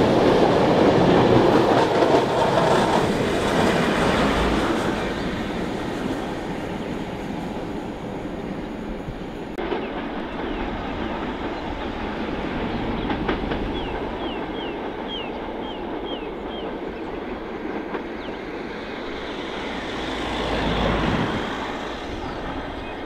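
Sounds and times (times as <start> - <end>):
train wheels rumbling and clattering: 0.0 - 23.0.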